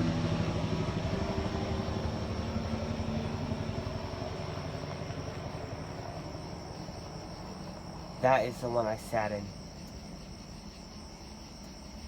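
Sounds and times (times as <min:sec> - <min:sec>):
helicopter rotor beat: 0:00.0 - 0:09.6.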